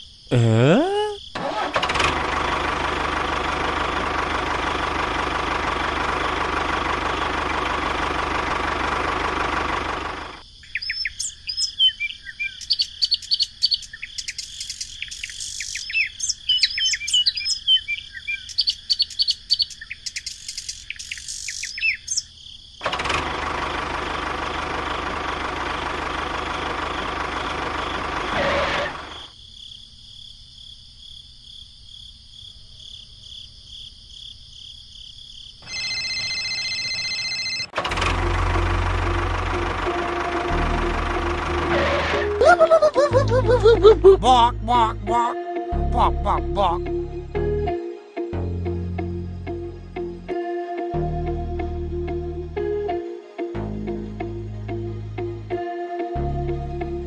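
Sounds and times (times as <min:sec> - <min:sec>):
birds chirping: 0:10.6 - 0:22.3.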